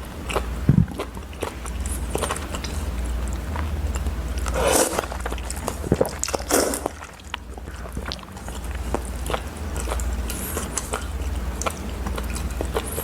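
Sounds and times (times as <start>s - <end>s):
biting and chewing food: 0.0s - 13.0s
steady low hum: 0.0s - 13.0s.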